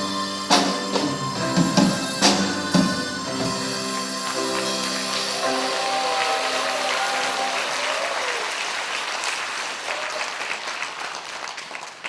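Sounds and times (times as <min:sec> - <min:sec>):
harmonica ensemble chord: 0:00.0 - 0:07.8
audience applause: 0:04.2 - 0:12.0.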